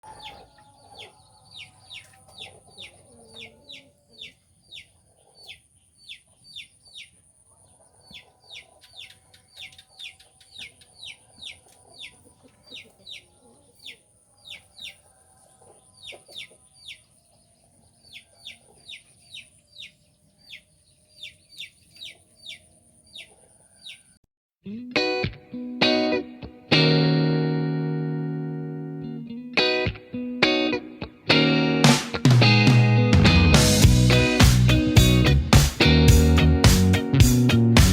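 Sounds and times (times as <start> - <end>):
wild bird calling: 0.0 - 24.2.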